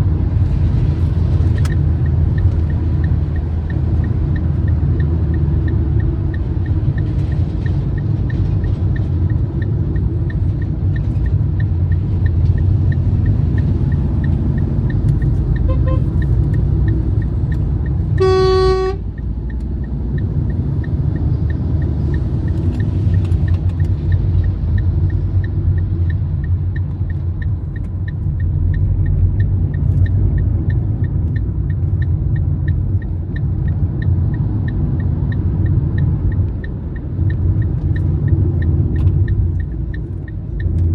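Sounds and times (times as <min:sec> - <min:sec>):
car road and engine rumble: 0:00.0 - 0:40.9
car horn honk: 0:15.7 - 0:16.1, 0:18.2 - 0:19.0.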